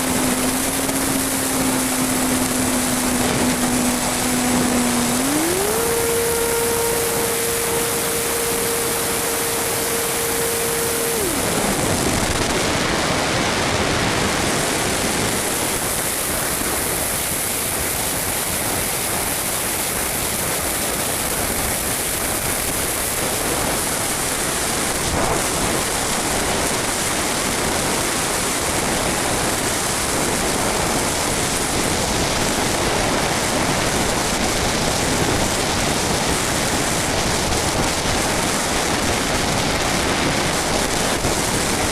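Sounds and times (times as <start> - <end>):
model plane motor tone: 0.0 - 13.4.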